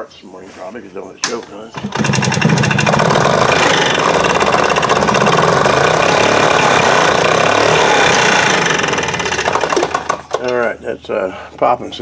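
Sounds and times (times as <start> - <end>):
golf cart engine running: 1.8 - 10.5.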